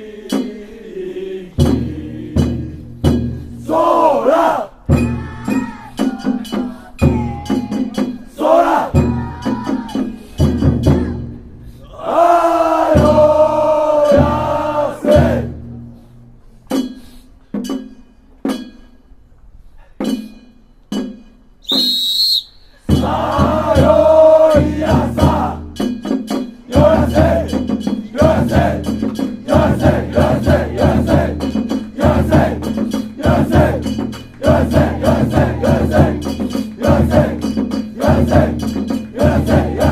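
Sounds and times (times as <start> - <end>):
men singing: 0.0 - 11.2, 11.9 - 15.6, 22.9 - 25.8, 26.7 - 39.9
sharp percussion strikes: 1.6 - 3.8, 4.9 - 11.4, 12.8 - 15.4, 16.7 - 19.2, 20.0 - 21.5, 22.9 - 39.9.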